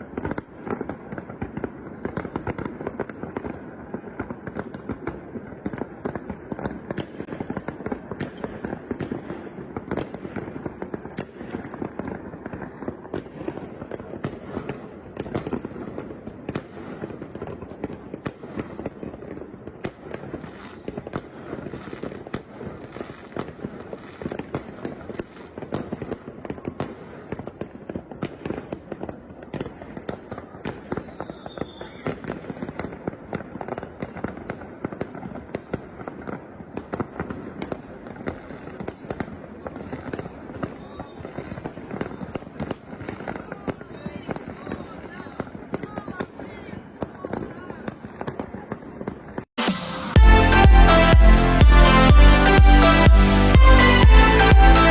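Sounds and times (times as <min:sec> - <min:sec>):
fireworks bangs and pops: 0:00.0 - 0:54.9
falling firework whistle: 0:30.8 - 0:32.3, 0:49.6 - 0:54.9.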